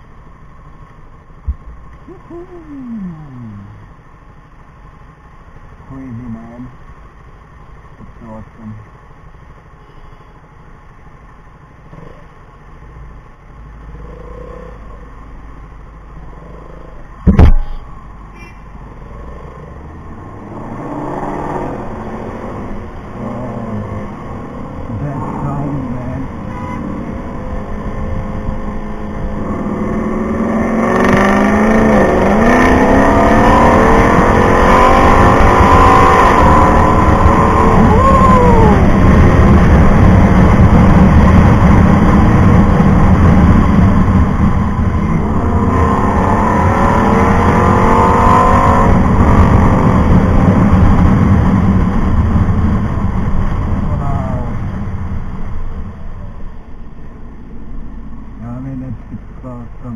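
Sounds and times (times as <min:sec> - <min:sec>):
wind rush on microphone: 0:26.3 - 0:56.3
motorcycle engine revving: 0:26.8 - 0:38.1.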